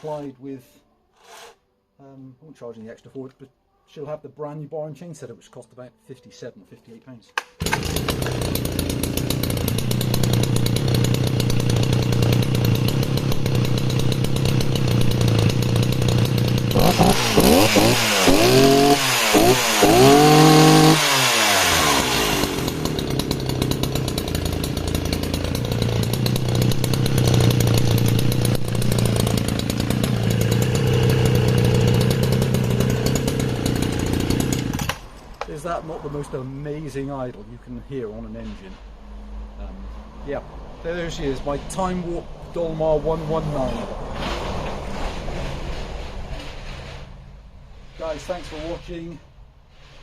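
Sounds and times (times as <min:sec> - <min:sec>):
chainsaw idling and revving: 0:07.6 - 0:35.6.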